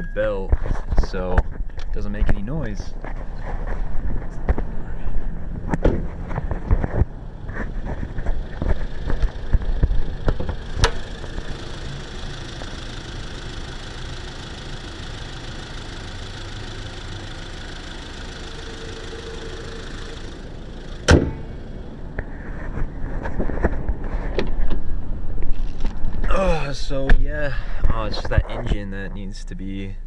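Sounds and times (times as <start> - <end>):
car engine idling: 0.0 - 30.0
clicks: 5.7 - 11.6
sharp loud knock: 21.1 - 21.5.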